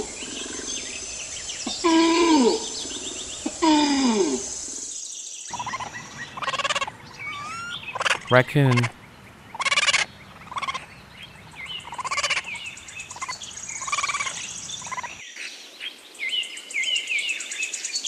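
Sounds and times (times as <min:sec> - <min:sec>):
small birds chirping: 0:00.0 - 0:03.6, 0:04.3 - 0:15.2
raccoon trilling calls: 0:05.5 - 0:15.2.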